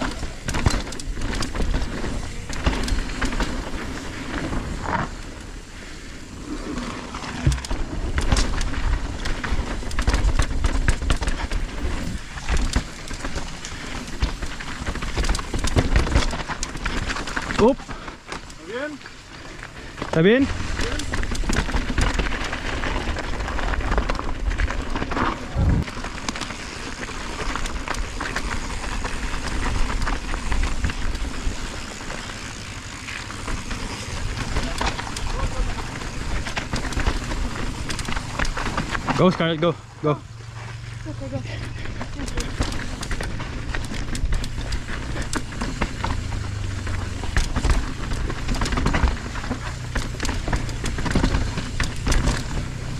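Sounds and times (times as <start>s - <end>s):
low rumble of wind: 0.0s - 52.9s
mountain bike rattling over rocks: 0.0s - 52.9s
wind on microphone: 25.5s - 25.8s.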